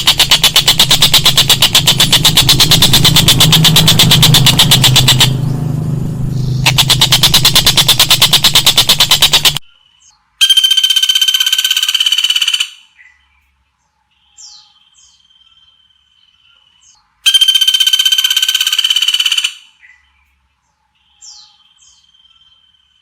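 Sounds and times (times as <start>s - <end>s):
songbird buzzing trill: 0.0s - 9.6s.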